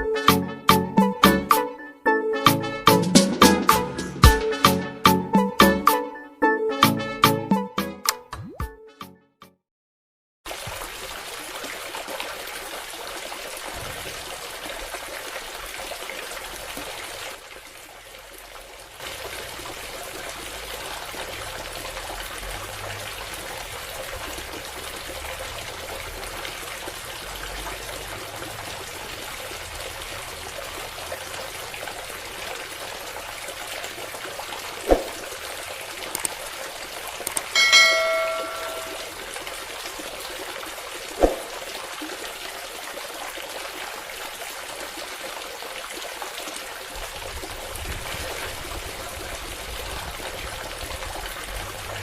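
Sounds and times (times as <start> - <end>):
water trickling from pump: 10.5 - 52.0.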